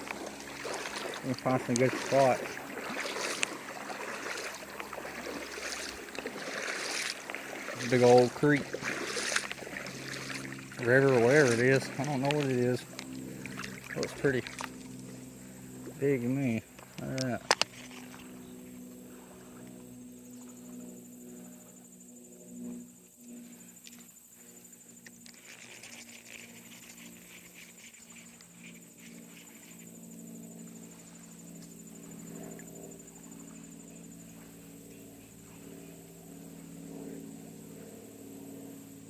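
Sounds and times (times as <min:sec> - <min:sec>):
insect trilling: 0:00.0 - 0:39.0
low steady hum: 0:00.0 - 0:39.0
light rustling and clicks: 0:16.8 - 0:18.2.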